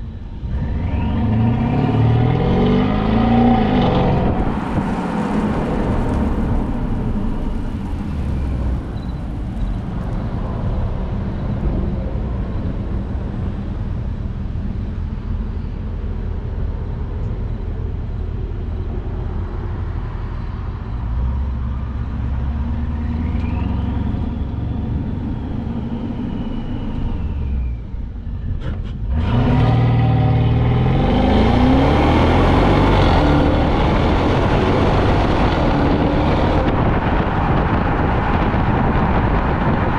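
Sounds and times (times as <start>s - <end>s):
car accelerating hard: 0.4s - 12.5s, 28.5s - 39.9s.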